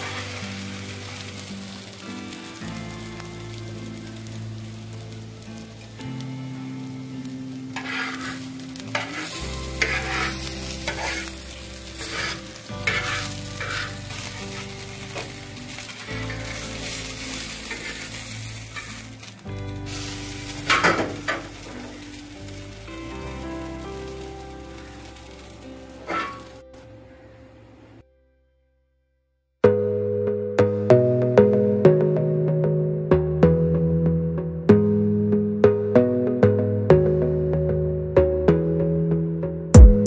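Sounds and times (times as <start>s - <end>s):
sandwich sizzling in hot oil: 0.0s - 26.6s
background music: 0.0s - 28.6s, 29.6s - 40.0s
metal utensil scraping pan: 7.7s - 11.4s, 12.0s - 14.3s, 17.6s - 19.1s, 26.0s - 26.5s.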